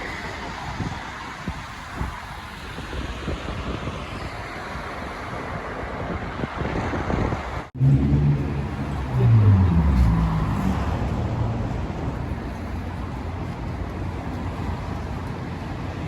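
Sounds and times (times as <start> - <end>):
street traffic: 0.0 - 16.0
wind buffeting microphone: 0.0 - 16.0
motor vehicle engine: 7.8 - 16.0.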